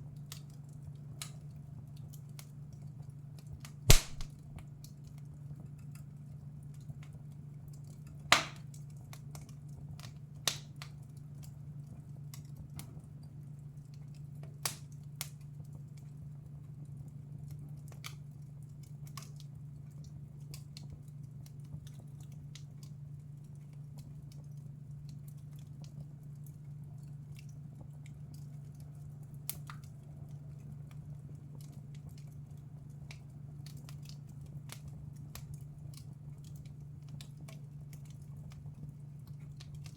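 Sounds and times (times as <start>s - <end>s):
fireplace fire crackling: 3.9s - 4.3s, 6.7s - 12.6s, 13.2s - 39.9s
loud sharp pops of fire: 3.9s - 4.3s, 8.3s - 8.6s.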